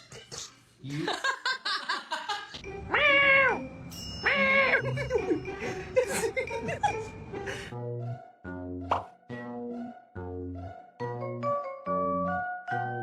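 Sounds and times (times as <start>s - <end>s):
cat meowing: 2.9s - 4.8s.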